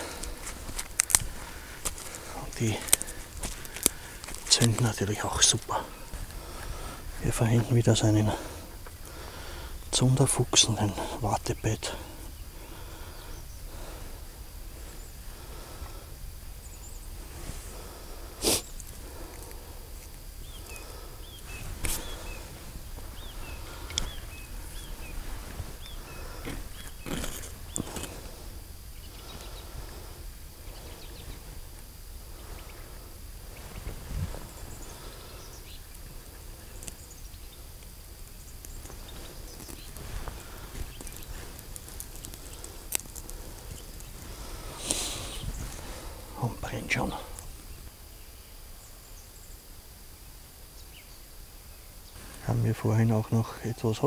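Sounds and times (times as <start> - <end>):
campfire crackling: 0.0 - 54.0
bird chirping: 1.4 - 14.0, 14.8 - 17.2, 18.4 - 30.0, 30.6 - 31.5, 32.3 - 54.0
rasping strikes lighting tinder: 9.9 - 47.8.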